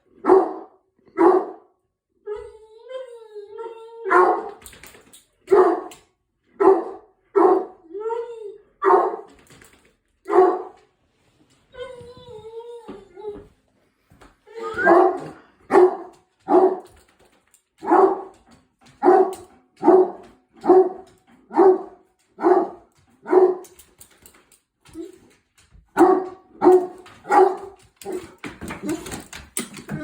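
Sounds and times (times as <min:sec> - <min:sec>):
dog barking: 0:00.2 - 0:01.7, 0:04.1 - 0:04.6, 0:05.5 - 0:06.0, 0:06.6 - 0:07.9, 0:08.8 - 0:09.4, 0:10.3 - 0:10.8, 0:14.7 - 0:16.9, 0:17.8 - 0:18.4, 0:19.0 - 0:23.8, 0:26.0 - 0:28.3.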